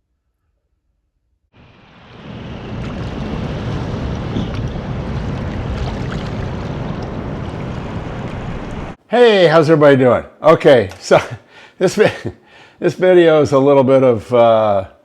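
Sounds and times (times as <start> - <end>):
heavy rain pouring: 1.6 - 9.0.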